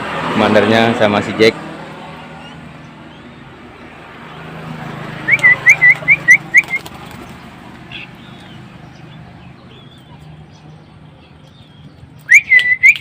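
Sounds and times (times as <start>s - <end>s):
bird whistling short notes: 12.2s - 13.0s.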